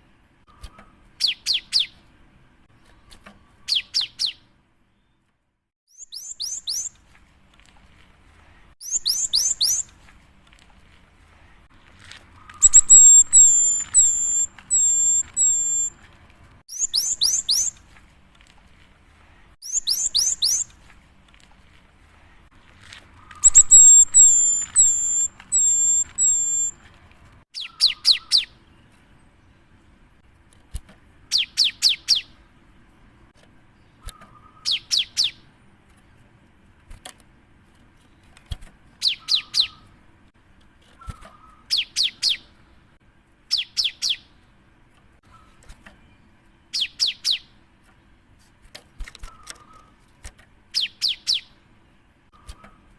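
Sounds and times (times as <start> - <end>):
bird singing high notes: 12.5 - 16.0, 23.4 - 26.8
fast falling whistled notes: 23.4 - 26.8.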